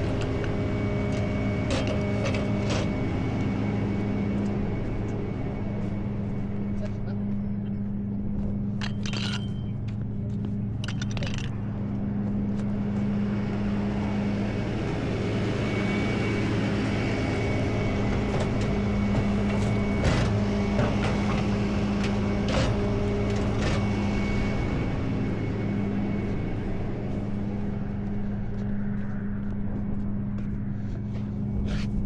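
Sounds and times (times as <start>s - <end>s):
tow truck engine idling: 15.9s - 24.6s.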